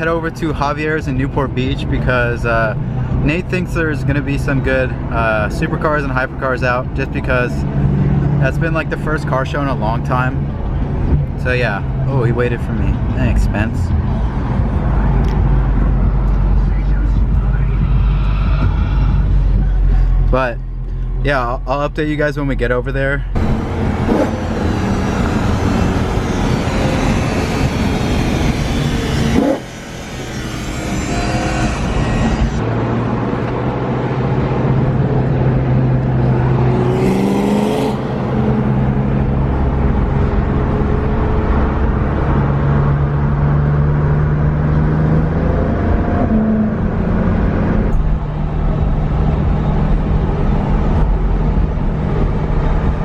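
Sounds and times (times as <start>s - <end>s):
road and wind noise: 0.0s - 53.0s
car engine through gear changes: 23.3s - 53.0s.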